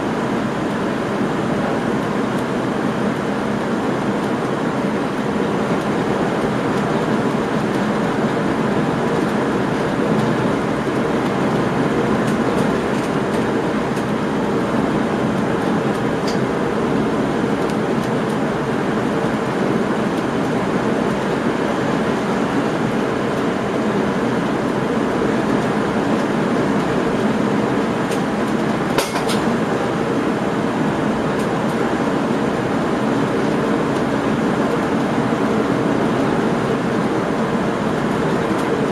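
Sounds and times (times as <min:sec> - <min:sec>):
train wheels rumbling on rails: 0:00.0 - 0:38.9
sharp knock: 0:28.9 - 0:29.5.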